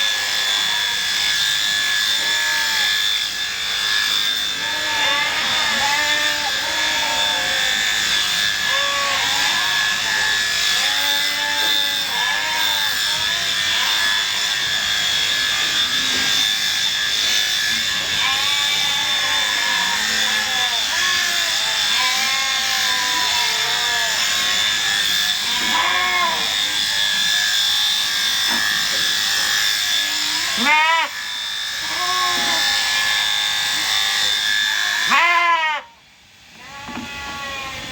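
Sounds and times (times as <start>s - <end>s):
electric shears whining: 0.0s - 37.9s
sheep bleating: 4.5s - 14.3s, 18.1s - 26.7s, 30.1s - 31.2s, 31.8s - 34.2s, 35.0s - 36.0s, 36.6s - 37.8s.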